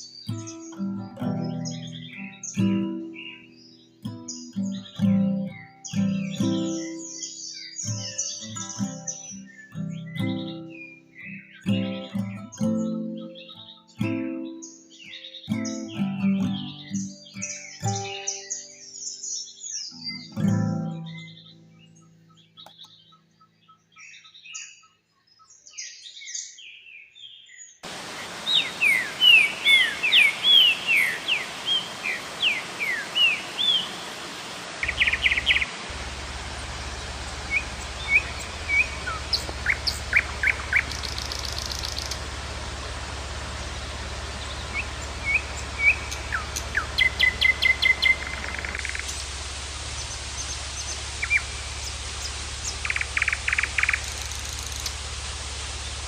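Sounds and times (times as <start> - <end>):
songbirds chirping and singing: 0.0 - 56.0
steady hiss: 27.8 - 56.0
steady low hum: 27.9 - 56.0.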